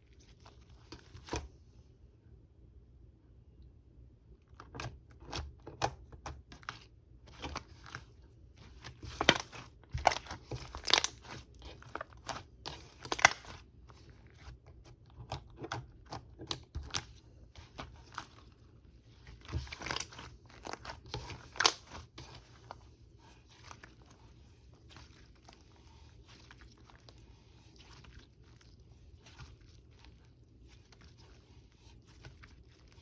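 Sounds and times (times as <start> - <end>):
slime crackling and popping: 9.1 - 13.6, 19.4 - 22.3.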